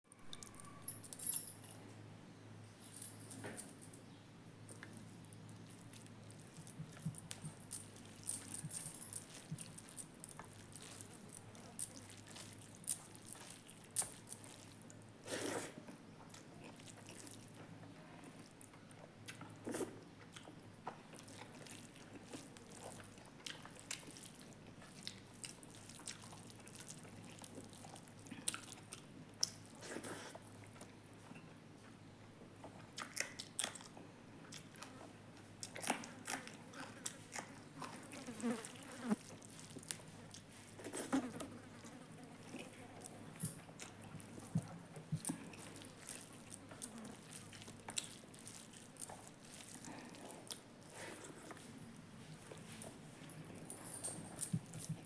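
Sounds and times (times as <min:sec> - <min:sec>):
person chewing food: 0:04.7 - 0:30.9, 0:32.6 - 0:53.7
mouth clicks and crunches: 0:33.0 - 0:35.0, 0:42.6 - 0:51.8.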